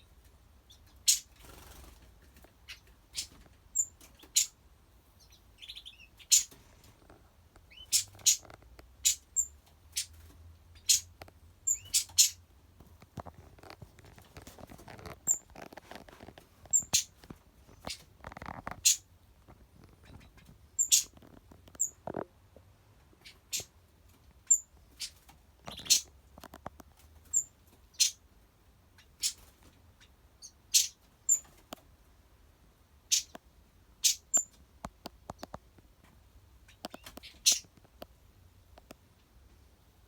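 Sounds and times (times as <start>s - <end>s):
small animal chirps and clicks: 7.6s - 10.2s, 10.8s - 12.4s, 16.7s - 17.1s, 19.8s - 22.2s, 24.4s - 28.2s, 29.0s - 31.8s, 34.0s - 35.6s, 36.7s - 38.1s.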